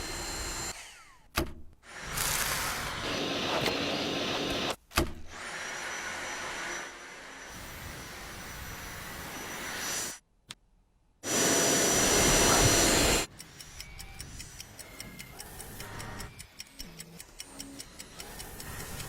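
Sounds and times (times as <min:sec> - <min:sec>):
stick vacuum cleaner whining: 0:02.0 - 0:04.8, 0:11.2 - 0:13.3.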